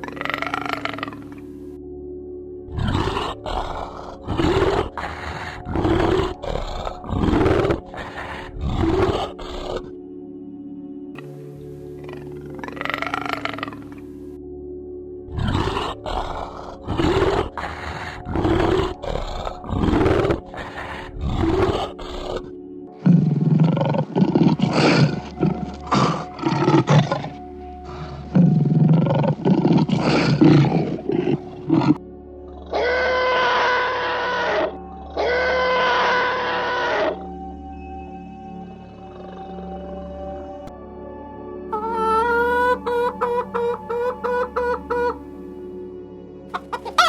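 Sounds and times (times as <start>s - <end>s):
animal calls: 0.0s - 1.4s, 2.7s - 9.9s, 12.0s - 14.1s, 15.3s - 37.3s, 41.7s - 45.3s, 46.5s - 47.0s
quiet background music: 0.0s - 47.0s.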